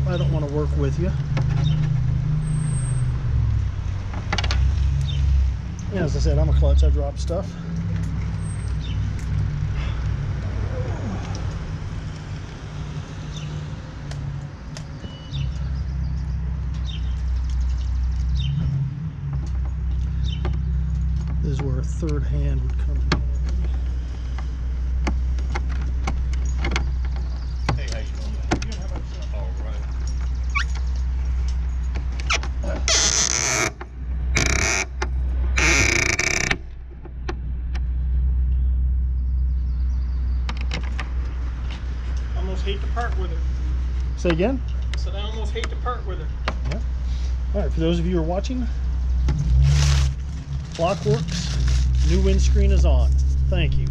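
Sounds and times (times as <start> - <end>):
vehicle engine running: 0.0 - 32.9, 36.2 - 53.9
steady low hum: 52.5 - 53.9.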